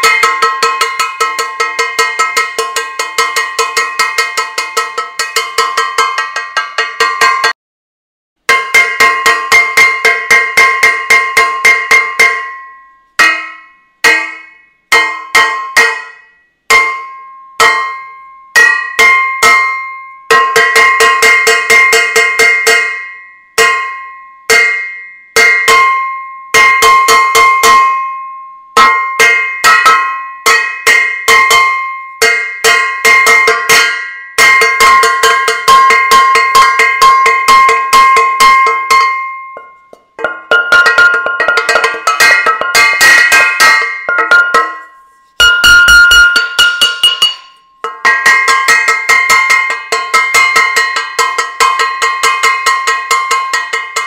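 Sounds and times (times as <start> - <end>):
metal saucepan clanging: 28.8 - 54.0.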